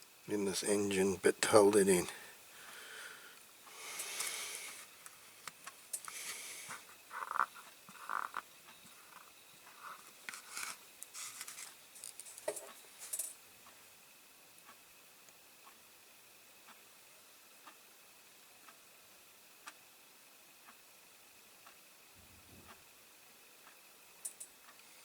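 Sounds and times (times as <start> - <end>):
soft scrapes and rustles: 9.8 - 13.2.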